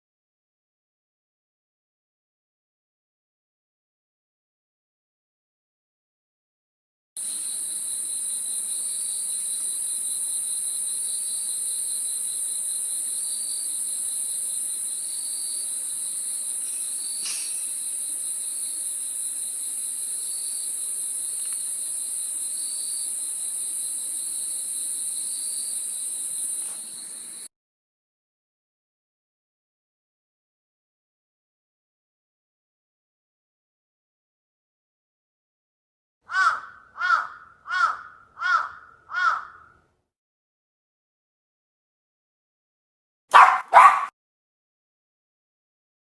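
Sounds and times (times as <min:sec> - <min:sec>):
insect chirp: 0:07.2 - 0:27.5
insects trilling: 0:07.2 - 0:27.5.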